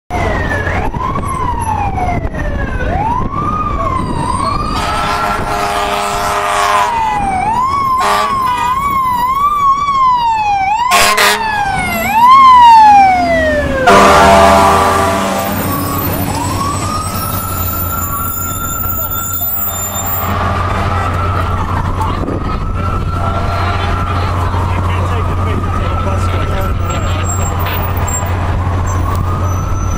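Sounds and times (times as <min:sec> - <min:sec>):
fire truck siren wailing: 0:00.1 - 0:29.9
air horn blasts: 0:04.8 - 0:07.2, 0:08.0 - 0:08.8, 0:10.9 - 0:11.6, 0:13.8 - 0:16.2, 0:19.6 - 0:21.2.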